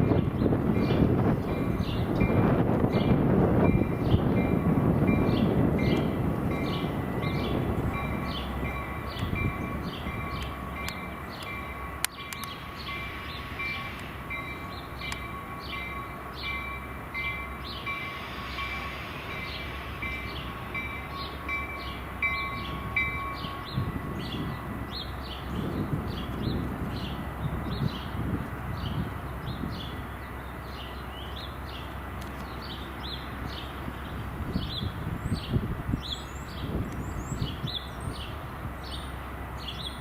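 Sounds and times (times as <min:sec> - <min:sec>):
crossing bell ringing: 0:00.0 - 0:25.6
passing train rumble: 0:00.0 - 0:40.0.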